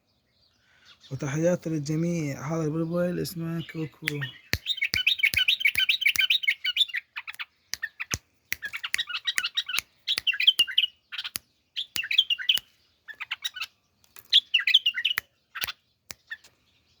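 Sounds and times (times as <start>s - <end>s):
bird twittering: 2.0s - 16.6s
sharp clicks: 4.0s - 6.4s, 7.3s - 12.7s, 14.0s - 14.4s.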